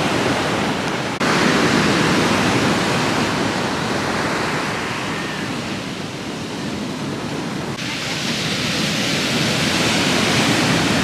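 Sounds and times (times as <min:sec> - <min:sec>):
waves breaking on shore: 0:00.0 - 0:11.0.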